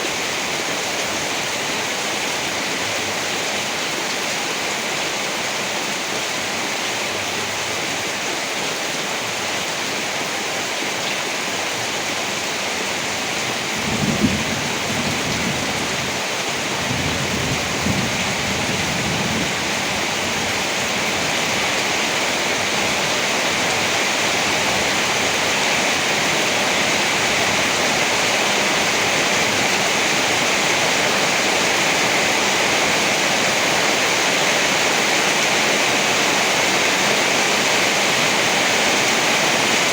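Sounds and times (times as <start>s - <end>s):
steady rain: 0.0s - 39.9s
thunder clap rumbling: 13.8s - 16.0s.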